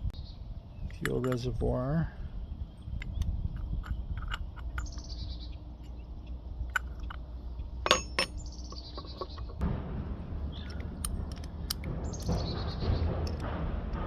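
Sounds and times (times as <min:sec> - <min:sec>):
steady low hum: 0:00.0 - 0:14.0
songbird trilling: 0:00.1 - 0:09.6
metal parts clinking: 0:00.9 - 0:01.7, 0:02.8 - 0:06.0, 0:06.6 - 0:09.6, 0:10.6 - 0:12.4.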